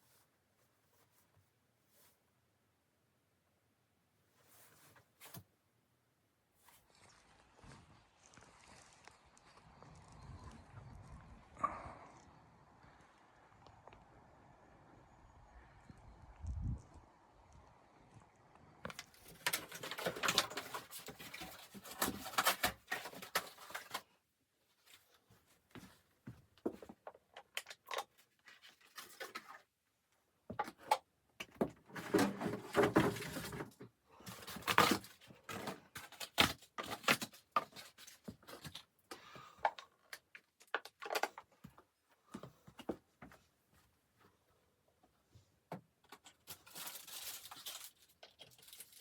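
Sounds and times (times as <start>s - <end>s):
rustling: 4.2s - 5.6s, 18.8s - 26.9s, 41.2s - 49.0s.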